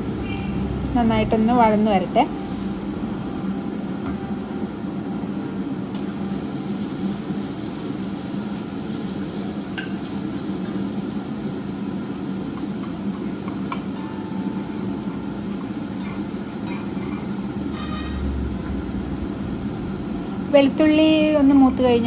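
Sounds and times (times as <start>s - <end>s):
steady low hum: 0.0s - 8.4s, 10.7s - 22.0s
onion sizzling in a pan: 0.0s - 22.0s.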